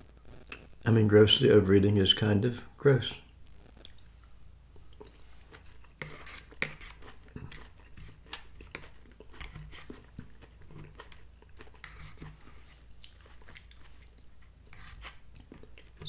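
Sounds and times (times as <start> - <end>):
person chewing green beans: 3.7 - 16.0.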